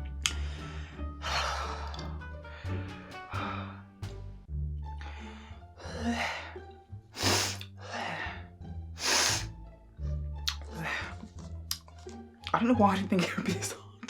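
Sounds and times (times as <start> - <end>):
background music low tones: 0.0 - 14.0
person hissing breaths: 7.2 - 8.3, 9.0 - 9.5.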